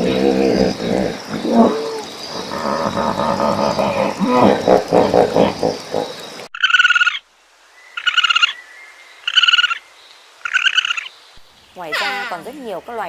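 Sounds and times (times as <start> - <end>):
low pitched animal calls: 0.0 - 7.2
rapidly pulsed high animal calls: 10.4 - 11.1.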